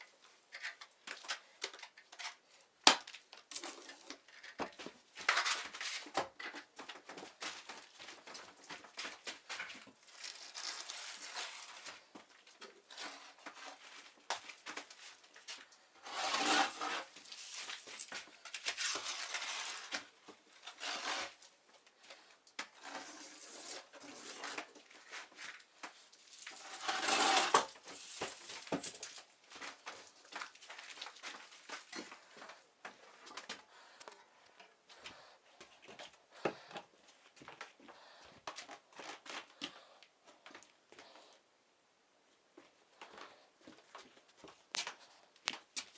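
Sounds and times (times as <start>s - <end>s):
tools scraping plaster wall: 16.0s - 21.6s, 22.7s - 25.5s, 26.4s - 29.2s.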